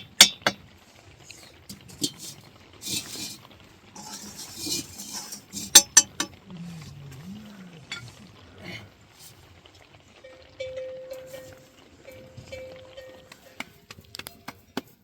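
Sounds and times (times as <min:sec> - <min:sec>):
scraping noise: 0:02.1 - 0:07.3.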